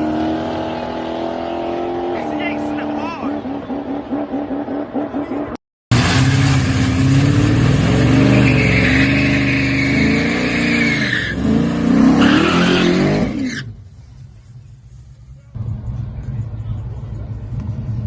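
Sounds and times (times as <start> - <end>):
high squeal: 8.2 - 11.4.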